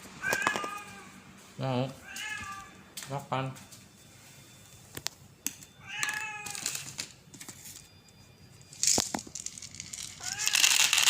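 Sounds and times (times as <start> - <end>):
cat meowing: 0.2 - 1.1, 2.0 - 2.8, 5.8 - 6.6, 10.2 - 10.6.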